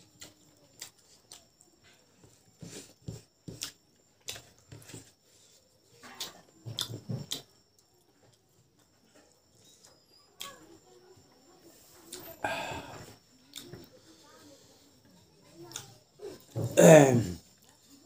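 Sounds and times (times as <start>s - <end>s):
wet chewing and lip smacking: 0.1s - 1.7s, 3.6s - 4.4s, 6.1s - 10.6s, 13.5s - 13.8s, 15.7s - 16.0s.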